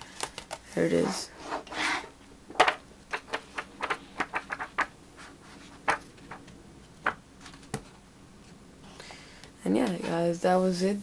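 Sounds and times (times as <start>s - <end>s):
objects clicking and tapping: 2.5s - 4.9s.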